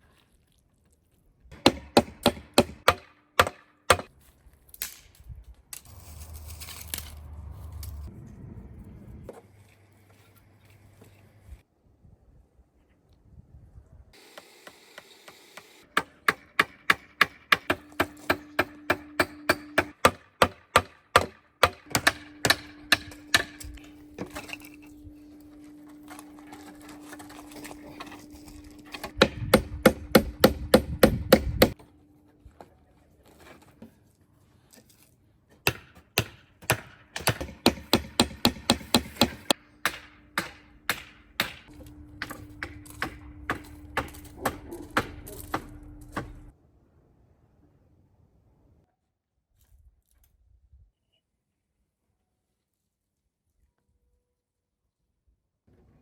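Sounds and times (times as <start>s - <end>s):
chopping on wood: 1.6s - 4.1s, 35.6s - 46.5s.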